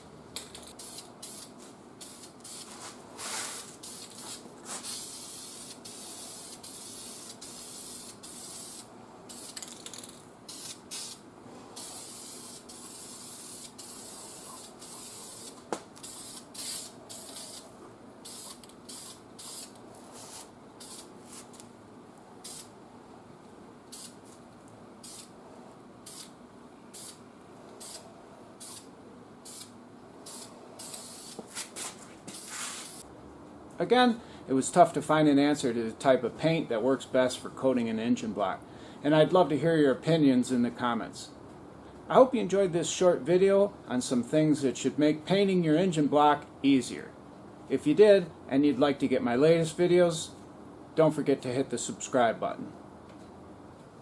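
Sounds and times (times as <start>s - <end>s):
spray can hissing: 0.7s - 11.2s, 11.8s - 21.5s, 22.4s - 22.7s, 23.9s - 24.3s, 25.0s - 25.3s, 26.0s - 26.3s, 26.9s - 27.2s, 27.8s - 28.0s, 28.6s - 33.0s.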